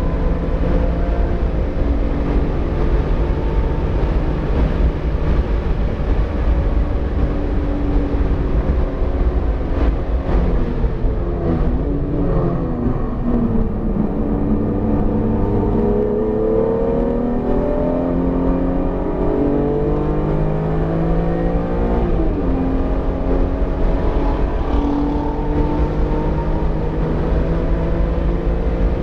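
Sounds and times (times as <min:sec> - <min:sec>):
car engine under load: 0:00.0 - 0:29.0
road and wind noise: 0:00.0 - 0:29.0.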